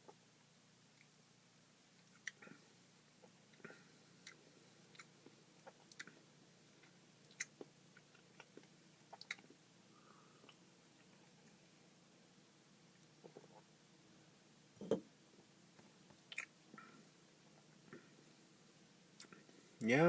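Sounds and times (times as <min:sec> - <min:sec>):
wet mouth clicks and lip smacks: 0:16.3 - 0:16.5.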